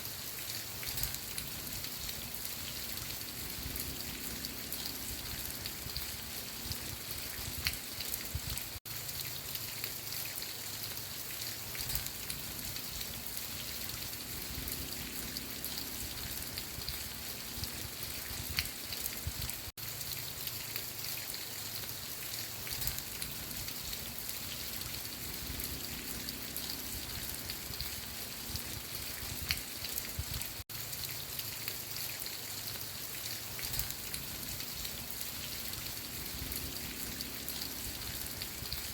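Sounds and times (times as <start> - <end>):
steady rain falling: 0.0 - 38.9
raindrops clicking: 0.8 - 10.4, 11.7 - 21.4, 22.6 - 38.9.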